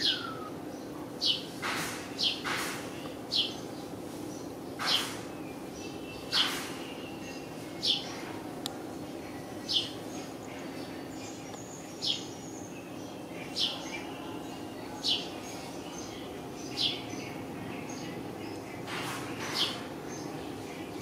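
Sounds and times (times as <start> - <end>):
bird chirping high falling chirps: 0.0 - 0.6
faint bird chirps: 0.0 - 0.6.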